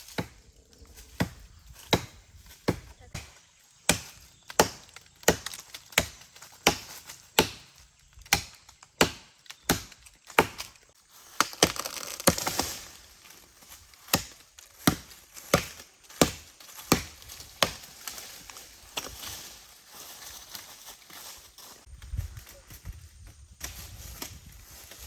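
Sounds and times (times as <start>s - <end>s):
rustling noise: 17.8s - 25.0s.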